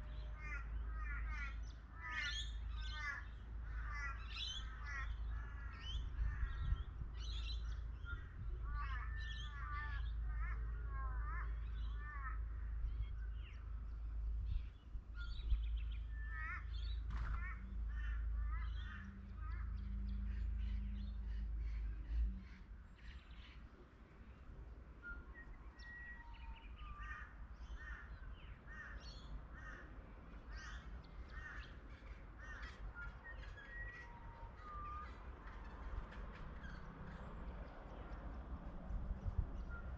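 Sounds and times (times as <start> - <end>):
birds calling: 0.0 - 39.9.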